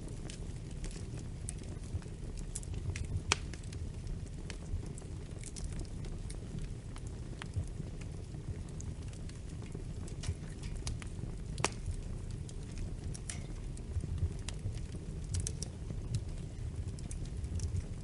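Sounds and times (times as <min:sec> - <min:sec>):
fire popping and snapping: 0:00.0 - 0:18.0
wood fire rumbling: 0:00.0 - 0:18.0.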